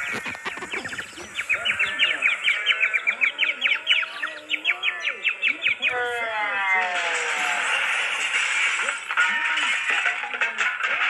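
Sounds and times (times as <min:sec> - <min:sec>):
bird chirping rapidly: 0:00.0 - 0:06.3.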